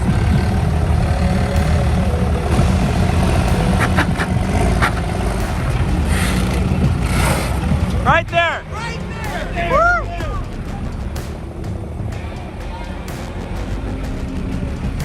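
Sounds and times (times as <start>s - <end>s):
pickup truck engine running: 0.0s - 15.0s.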